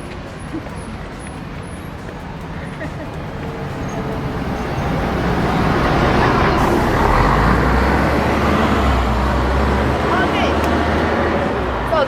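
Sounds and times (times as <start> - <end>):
bus engine and tyre noise: 0.0 - 12.0.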